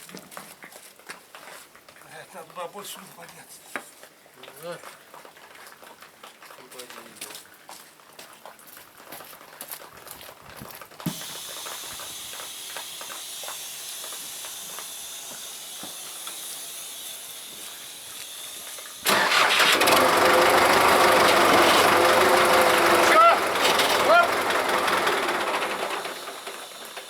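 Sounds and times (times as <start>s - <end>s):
steady hiss: 11.1s - 19.1s, 25.1s - 27.0s
loud engine starting and running: 11.1s - 27.0s.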